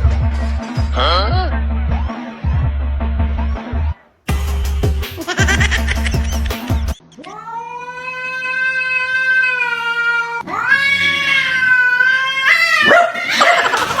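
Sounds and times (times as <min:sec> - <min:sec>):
cat yowling: 0:07.2 - 0:13.9.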